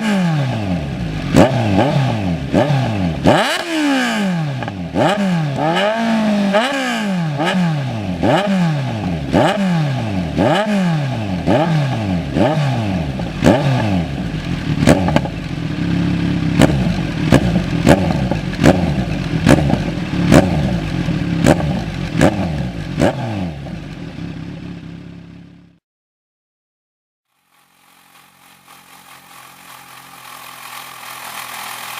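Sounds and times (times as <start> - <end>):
motorcycle engine revving: 0.0 - 25.8, 27.3 - 31.9
exhaust pops and crackles: 16.6 - 22.4.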